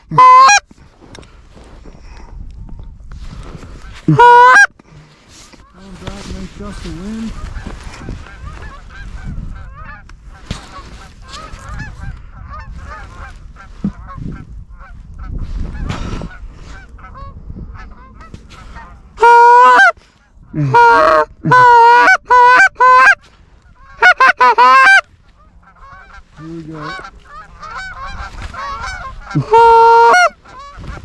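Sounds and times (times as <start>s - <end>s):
geese honking: 0.0s - 0.6s, 4.1s - 4.7s, 7.0s - 20.0s, 20.6s - 31.0s
wind rumble on microphone: 0.0s - 4.2s, 5.4s - 19.2s, 19.9s - 21.5s, 25.0s - 31.0s.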